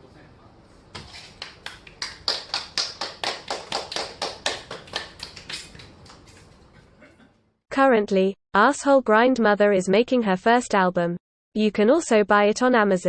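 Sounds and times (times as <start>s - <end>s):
people clapping in rhythm: 1.4s - 6.3s.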